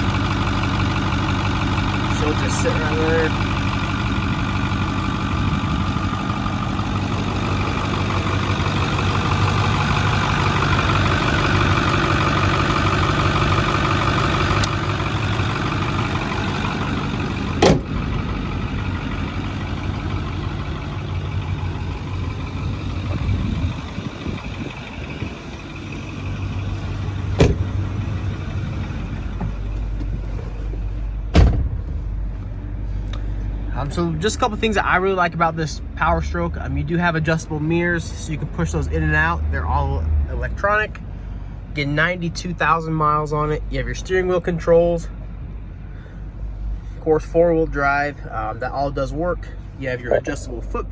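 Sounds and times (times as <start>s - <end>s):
diesel engine idling: 0.0s - 50.9s
sharp engine knocks: 9.1s - 18.4s, 26.3s - 32.3s.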